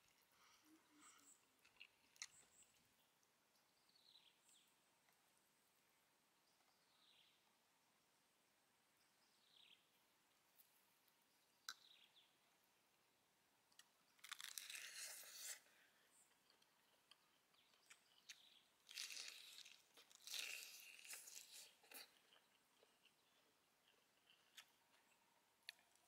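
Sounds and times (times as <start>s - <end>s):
lettuce crunching while chewing: 0.0s - 2.9s, 13.8s - 26.0s.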